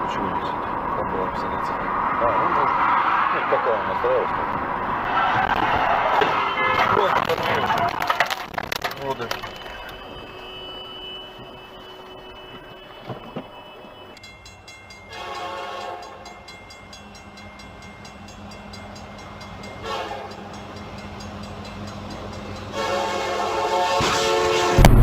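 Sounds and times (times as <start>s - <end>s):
horn blasts: 6.2s - 8.0s, 9.2s - 14.3s, 15.1s - 16.3s, 19.7s - 20.6s, 22.7s - 25.0s.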